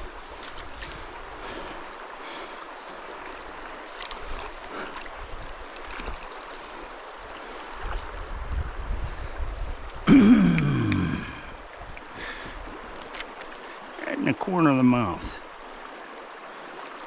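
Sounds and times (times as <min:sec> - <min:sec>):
mountain stream rushing: 0:00.0 - 0:17.0
faint clicks: 0:03.9 - 0:06.3, 0:12.0 - 0:14.1.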